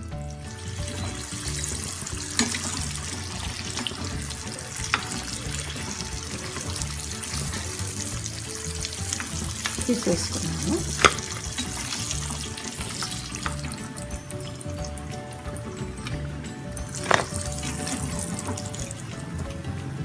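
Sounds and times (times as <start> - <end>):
dumplings sizzling in oil: 0.1 - 15.2.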